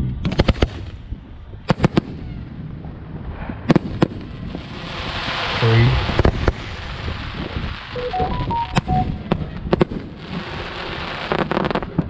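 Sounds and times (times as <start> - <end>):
fireworks bangs: 1.7 - 12.0
fireworks crackle: 2.8 - 12.0.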